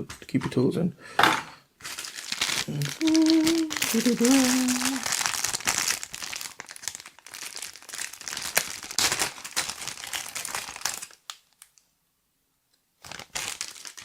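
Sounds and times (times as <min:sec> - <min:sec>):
packaging crinkling and rustling: 0:01.8 - 0:11.8, 0:13.0 - 0:14.0.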